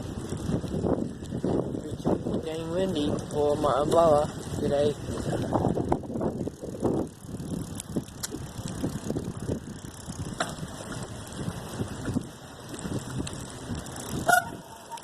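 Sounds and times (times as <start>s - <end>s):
wind buffeting microphone: 0.0s - 15.0s
sharp clicks: 7.8s - 8.4s.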